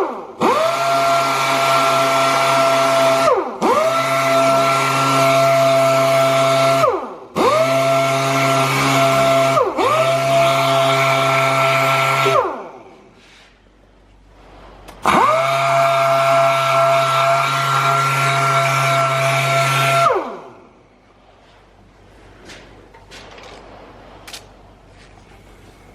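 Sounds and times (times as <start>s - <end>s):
orbital sander whining: 0.4s - 12.7s, 15.0s - 20.5s.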